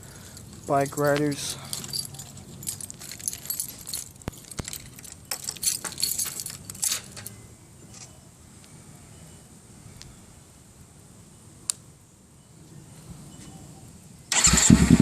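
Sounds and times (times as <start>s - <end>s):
keys jangling: 0.3s - 7.4s.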